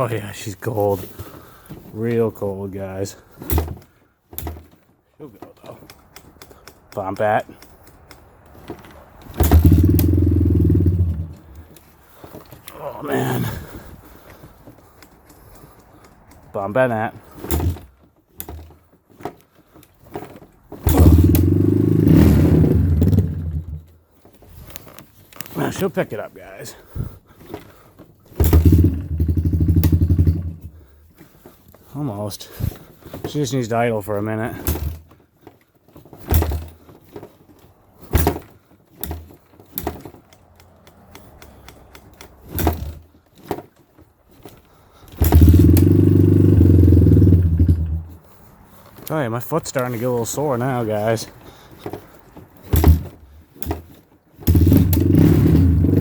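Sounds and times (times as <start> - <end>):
engine kick-start attempts: 0.8 - 56.0
quad engine starting and running: 8.6 - 14.5, 16.7 - 18.6, 20.8 - 23.9, 28.3 - 30.9, 41.1 - 43.7, 45.1 - 48.4, 49.0 - 56.0.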